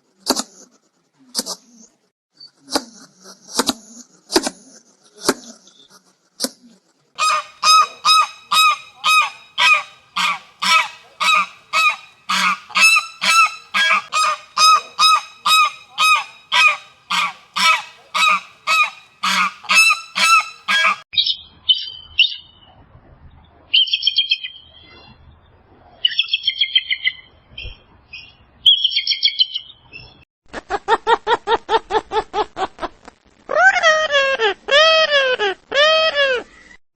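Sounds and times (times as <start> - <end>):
farmyard bird calling: 7.2 - 21.0
high short chirping calls: 7.2 - 21.0
low animal call: 7.2 - 21.0.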